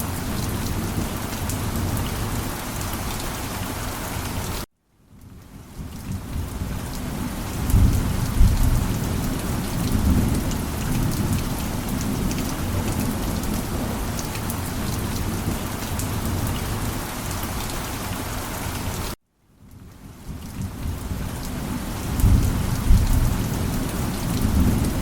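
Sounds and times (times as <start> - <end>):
heavy rain: 0.0 - 25.0
thunder rumbling: 6.0 - 16.8, 22.0 - 25.0.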